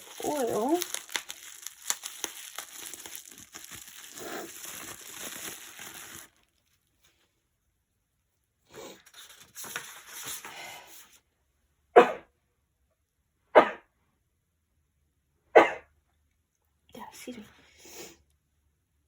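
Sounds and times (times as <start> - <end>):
wrapping crinkling and tearing: 0.0 - 6.9.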